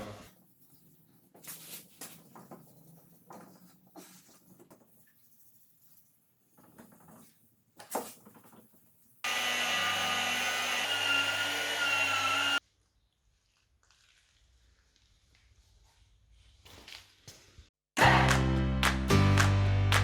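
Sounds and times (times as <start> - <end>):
power sander whining: 9.3 - 12.6.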